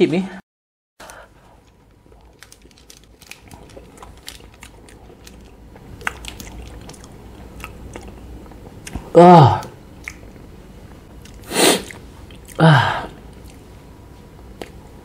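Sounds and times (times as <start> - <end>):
chewing with wet mouth clicks: 2.1 - 9.1, 10.0 - 12.6, 13.2 - 13.7.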